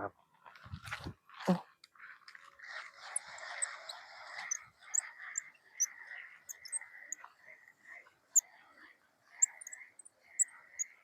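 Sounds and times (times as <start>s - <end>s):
steady insect chirring: 3.0s - 7.3s, 9.3s - 11.0s.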